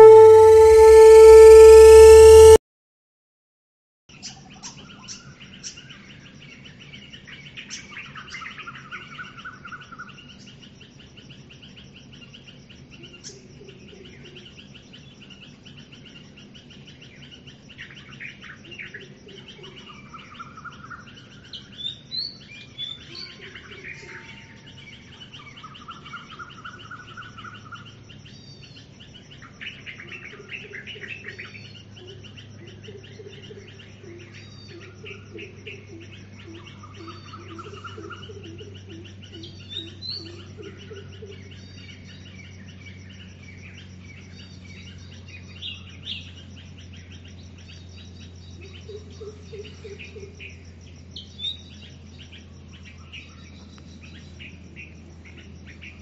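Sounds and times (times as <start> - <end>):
lower trilled bird phrase: 0.0 - 2.6
wild birds chirping and singing: 4.3 - 56.0.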